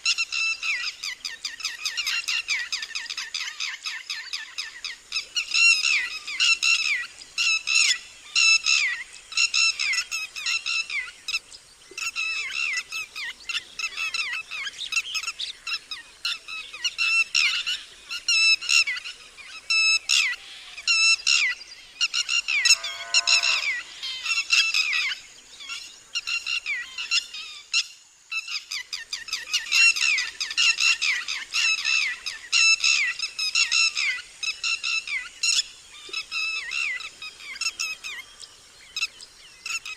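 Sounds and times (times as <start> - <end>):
lapwing alarm call: 19.8 - 27.6.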